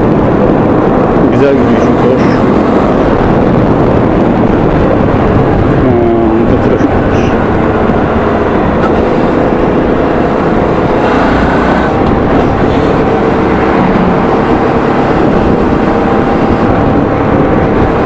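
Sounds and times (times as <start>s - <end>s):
motorcycle engine running: 0.0s - 18.0s
wind rush: 0.0s - 18.0s.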